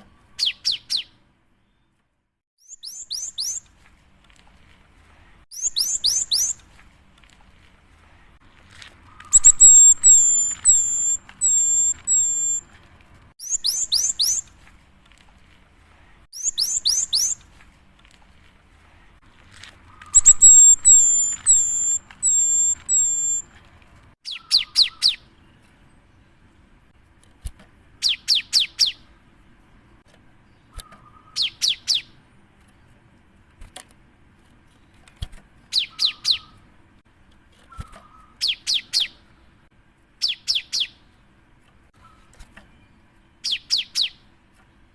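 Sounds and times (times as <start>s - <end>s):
bird singing whistled phrases: 0.4s - 1.1s, 2.6s - 3.6s, 5.5s - 6.6s, 9.2s - 12.7s, 13.4s - 14.5s, 16.4s - 17.4s, 20.0s - 23.5s, 24.2s - 25.2s, 35.7s - 36.6s.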